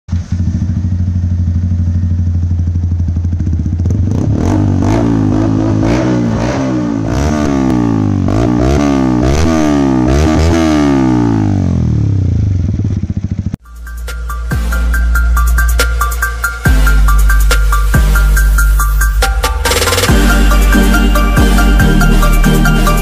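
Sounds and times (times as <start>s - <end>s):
motorcycle engine revving: 0.1s - 13.6s.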